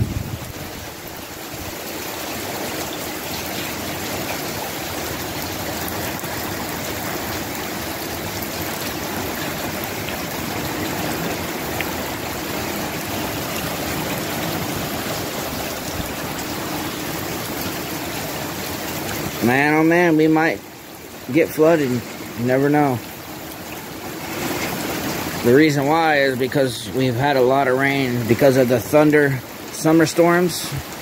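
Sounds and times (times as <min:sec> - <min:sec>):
storm wind rushing: 0:00.0 - 0:01.8
running water: 0:00.0 - 0:31.0.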